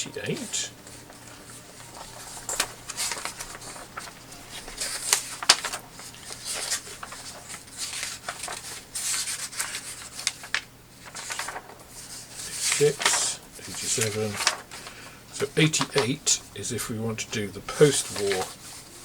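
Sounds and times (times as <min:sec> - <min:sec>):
paper pages rustling: 0:00.0 - 0:19.0
page flicks: 0:01.9 - 0:16.2, 0:17.8 - 0:18.6.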